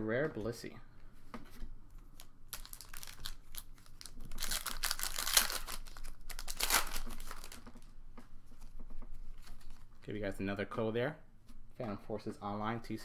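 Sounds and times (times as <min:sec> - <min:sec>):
foil wrapper crinkling: 0:02.0 - 0:08.0.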